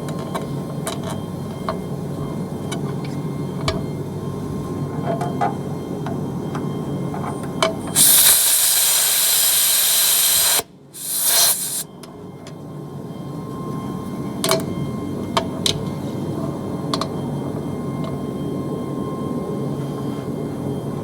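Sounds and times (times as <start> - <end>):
compressed air hissing: 7.9 - 11.8.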